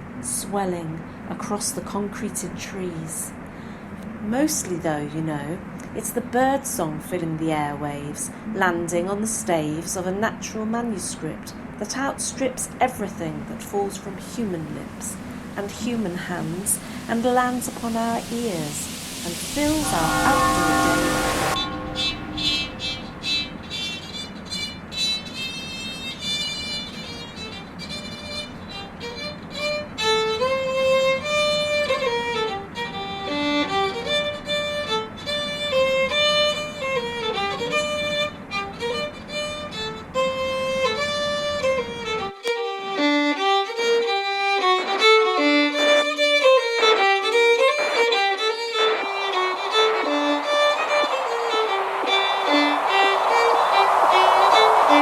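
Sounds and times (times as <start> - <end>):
low background noise: 0.0 - 55.0
hiss: 14.2 - 23.9, 47.8 - 55.0
instrumental melody of quick notes: 19.3 - 24.2.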